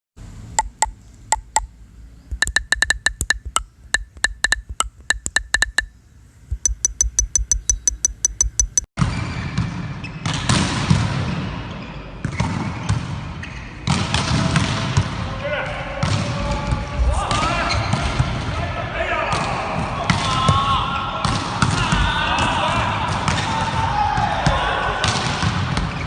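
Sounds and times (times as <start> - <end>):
volleyballs struck and bouncing: 0.6 - 1.7, 2.3 - 5.9, 6.5 - 8.9
voices in sports hall: 11.4 - 26.0.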